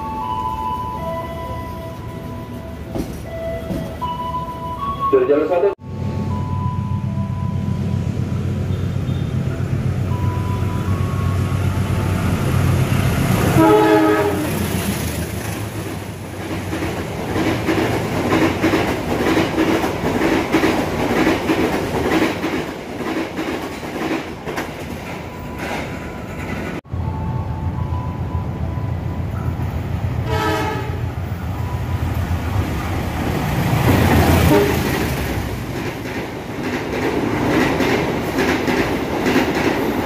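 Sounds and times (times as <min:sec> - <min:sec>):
diesel locomotive drone: 0:00.0 - 0:40.0
train wheels clattering over rails: 0:02.8 - 0:04.1, 0:13.4 - 0:26.8, 0:32.6 - 0:40.0
train horn: 0:13.4 - 0:14.8, 0:30.2 - 0:31.1, 0:34.4 - 0:34.9.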